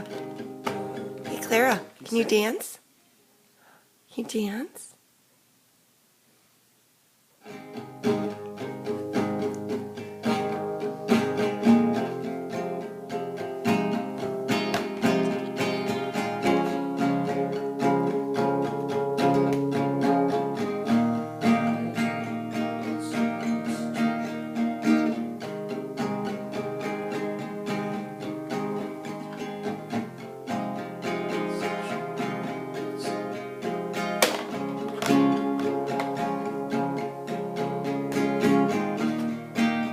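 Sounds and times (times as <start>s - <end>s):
acoustic guitar strummed and plucked: 0.0s - 2.6s, 7.4s - 39.9s.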